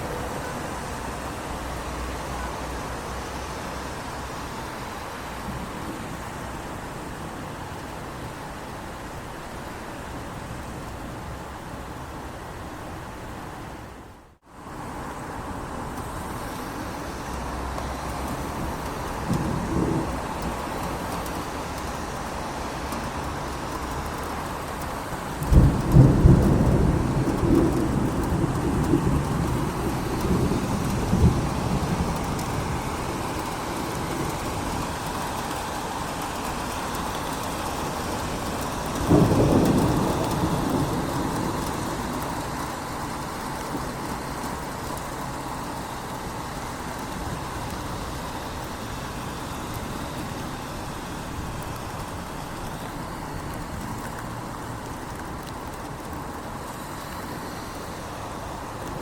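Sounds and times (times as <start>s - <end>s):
steady rain: 0.0s - 59.0s
thunder rumbling: 18.0s - 22.0s, 22.6s - 45.6s.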